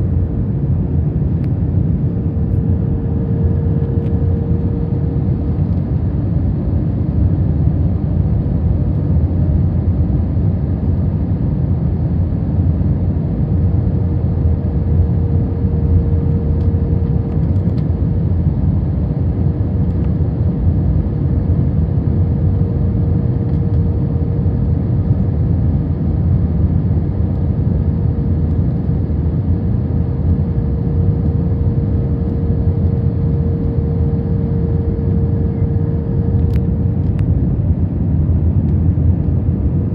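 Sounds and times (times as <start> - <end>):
airplane cabin roar: 0.0 - 39.9
steady hum tone: 0.0 - 39.9.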